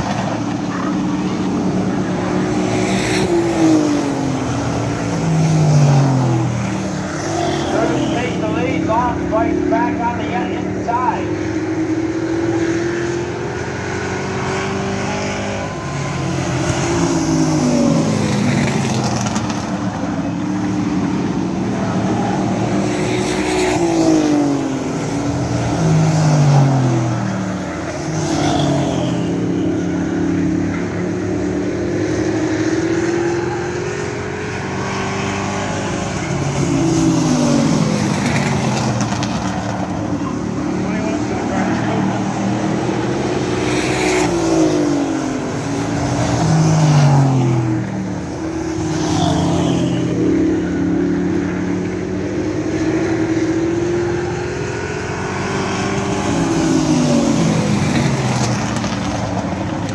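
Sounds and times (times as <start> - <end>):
race truck engines revving: 0.0 - 59.9.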